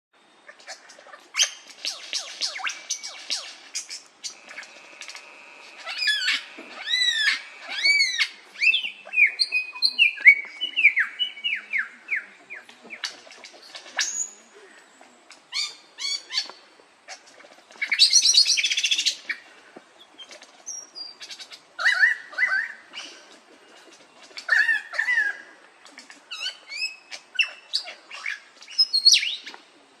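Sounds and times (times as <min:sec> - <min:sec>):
songbird singing chirps and trills: 0:00.4 - 0:30.0
harsh raspy bird call: 0:00.7 - 0:09.3.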